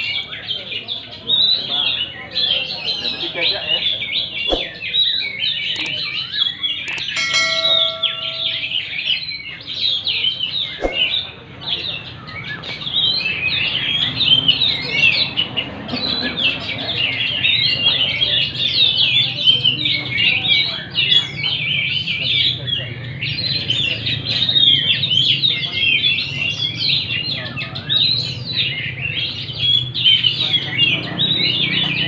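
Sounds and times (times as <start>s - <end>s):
songbirds chirping and trilling: 0.0s - 32.0s
short ringing tone: 6.9s - 8.9s.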